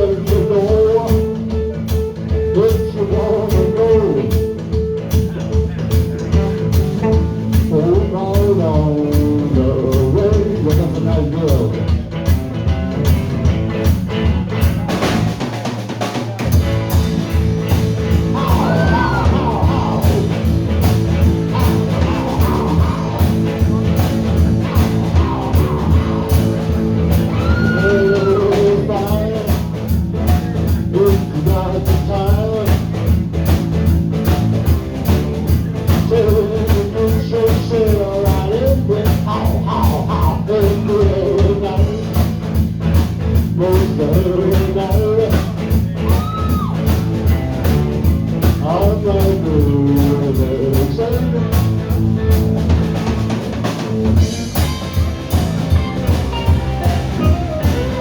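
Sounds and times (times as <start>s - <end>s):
electric guitar lead melody: 0.0s - 14.8s, 51.1s - 58.0s
drum kit beat: 0.0s - 58.0s
rock band playing: 0.0s - 58.0s.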